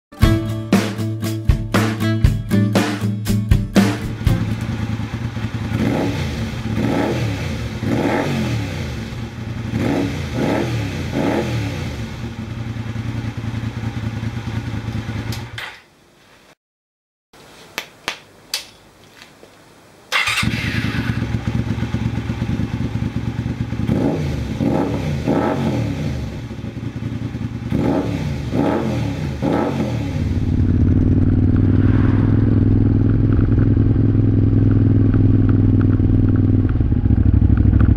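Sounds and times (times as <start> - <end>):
motorcycle engine idling and revving: 3.8 - 15.6, 20.2 - 37.9.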